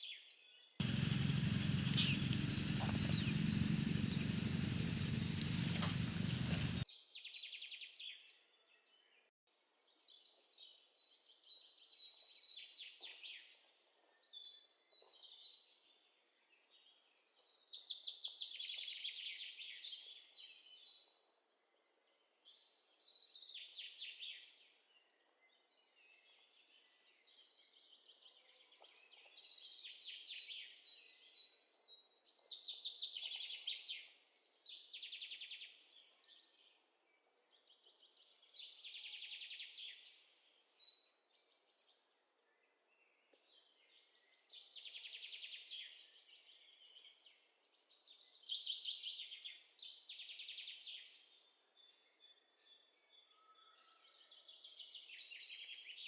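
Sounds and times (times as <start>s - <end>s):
birds singing trilled phrases: 0.8s - 6.8s.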